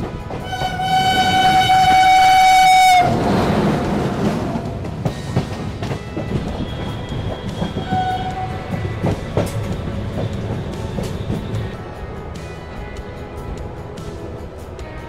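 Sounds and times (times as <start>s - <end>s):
train wheels clacking over rail joints: 0.0s - 12.5s
faint short train horn: 0.4s - 3.5s, 6.5s - 9.9s.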